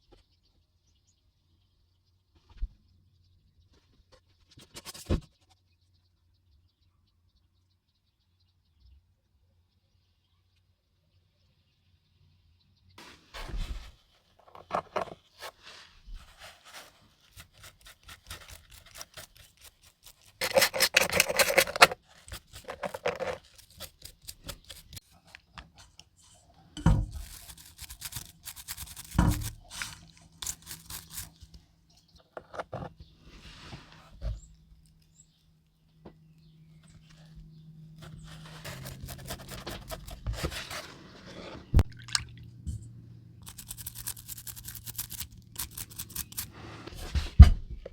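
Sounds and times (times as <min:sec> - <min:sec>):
metal parts scraping and rubbing: 0:14.4 - 0:15.2, 0:16.7 - 0:25.0, 0:27.1 - 0:31.4, 0:43.4 - 0:47.1
small tools clicking and knocking: 0:18.4 - 0:25.0.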